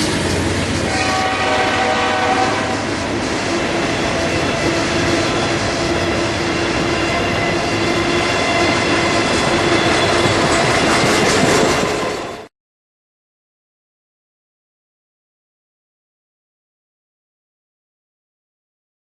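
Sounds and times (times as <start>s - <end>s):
train horn: 0.0s - 3.0s
train wheels rumbling on rail: 0.0s - 12.5s.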